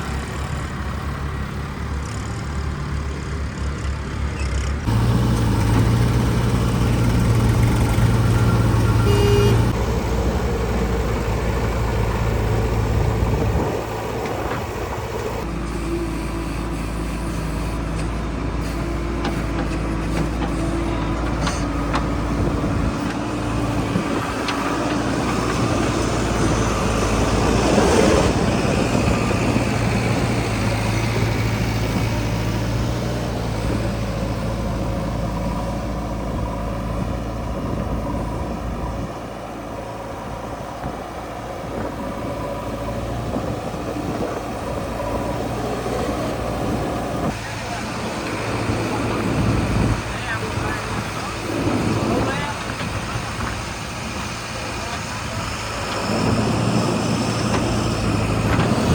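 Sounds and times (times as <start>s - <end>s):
diesel engine working: 0.0s - 58.9s.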